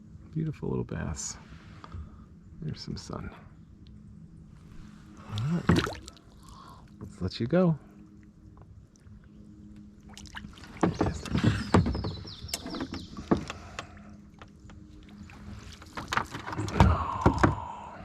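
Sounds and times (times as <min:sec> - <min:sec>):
water splashing: 0:05.2 - 0:06.7, 0:10.0 - 0:14.1
knocks against kayak hull: 0:10.7 - 0:13.6.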